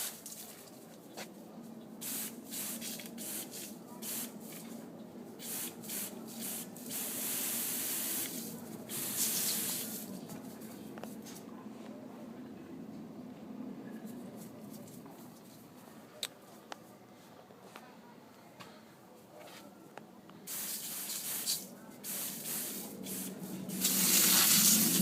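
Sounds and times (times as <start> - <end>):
spraying water hissing: 2.0 - 4.6, 5.4 - 10.1, 20.5 - 25.0.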